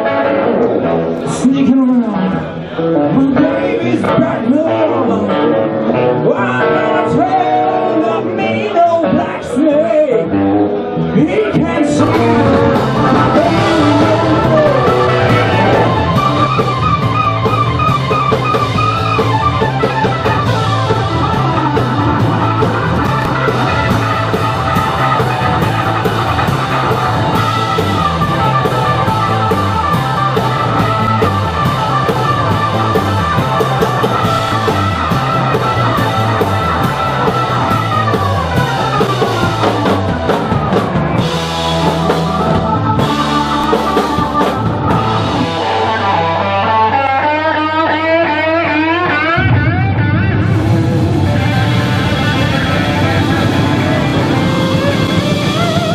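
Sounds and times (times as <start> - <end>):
electric guitar lines: 0.0 - 55.9
walking bass: 0.0 - 55.9
drum kit beat: 11.6 - 46.8, 49.4 - 55.9.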